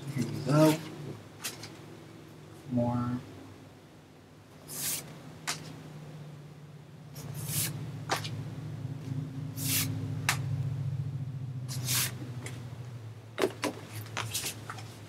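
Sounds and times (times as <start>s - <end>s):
steady low hum: 0.0s - 15.0s
photo cards sliding swishes: 4.7s - 5.8s, 7.2s - 8.4s, 9.6s - 9.9s, 11.7s - 12.2s, 13.9s - 15.0s.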